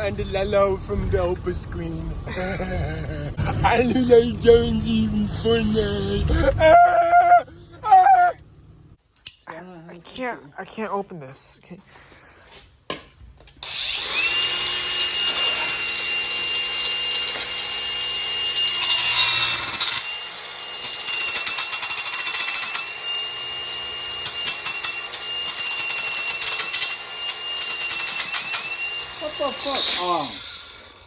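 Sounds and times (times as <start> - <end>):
electric power tool whining: 13.6 - 31.0
fast clicking rattle: 27.7 - 28.7.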